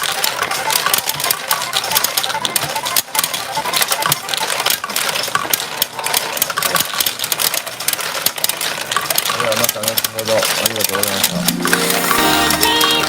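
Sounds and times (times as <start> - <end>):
steel balls clattering: 0.0 - 13.0
short electronic tones: 11.2 - 13.0.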